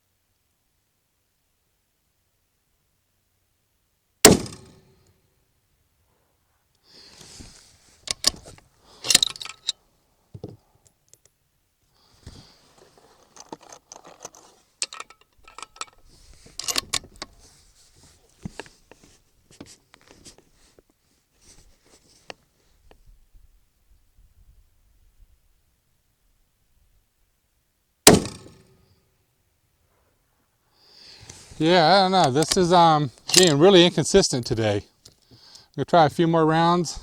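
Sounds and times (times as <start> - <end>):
soft rustling: 6.1 - 8.8, 12.1 - 14.8, 15.4 - 23.3
rifle bolt metallic clicks: 8.1 - 9.8, 13.4 - 16.0, 16.6 - 17.3, 32.2 - 33.6.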